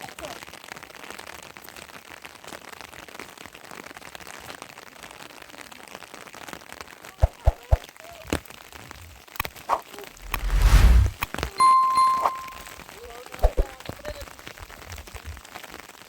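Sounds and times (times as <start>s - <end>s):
low rumble: 10.2s - 11.2s.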